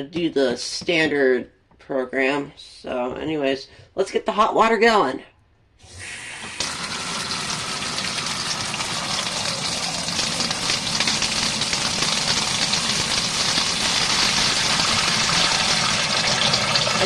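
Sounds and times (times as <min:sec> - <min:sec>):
tap water spraying into tub: 0:05.8 - 0:17.0.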